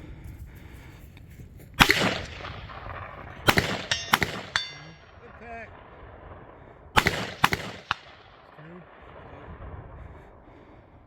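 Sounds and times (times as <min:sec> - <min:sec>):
rifle shots at steel targets: 0:01.8 - 0:09.2.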